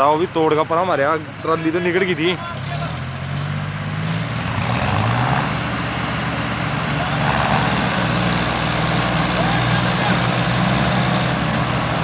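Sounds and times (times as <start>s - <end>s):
tractor diesel engine running: 5.5s - 12.0s.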